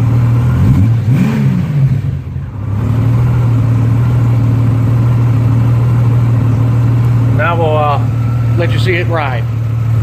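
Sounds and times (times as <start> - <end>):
motorcycle engine idling and revving: 0.0 - 10.0.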